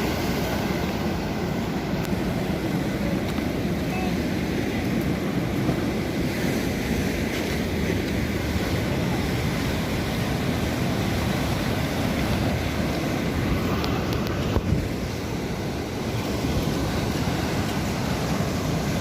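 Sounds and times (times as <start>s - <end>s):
sea waves on shore: 0.0s - 19.0s
wind rumbling on microphone: 0.0s - 19.0s.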